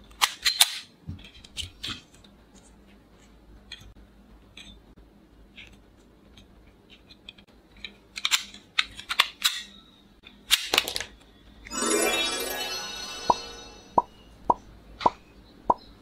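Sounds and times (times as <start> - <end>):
plastic toy gun clicks and snaps: 0.1 - 0.9.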